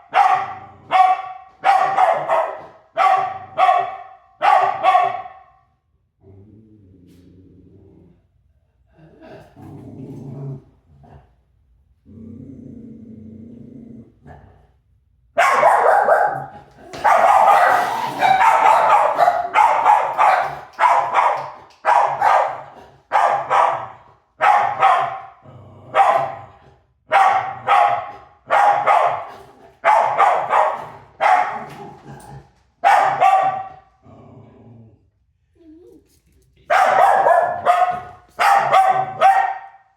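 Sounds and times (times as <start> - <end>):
dog barking hard: 0.0 - 5.6, 15.4 - 31.8, 32.8 - 33.9, 36.7 - 39.9
dog growling low: 6.1 - 14.8, 25.4 - 26.9, 31.0 - 32.6, 34.0 - 36.6.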